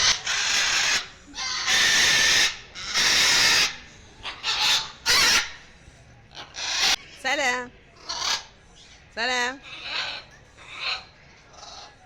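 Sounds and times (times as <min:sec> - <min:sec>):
parrot squawking: 0:00.0 - 0:05.7, 0:06.3 - 0:07.0, 0:08.0 - 0:08.6, 0:09.6 - 0:12.0.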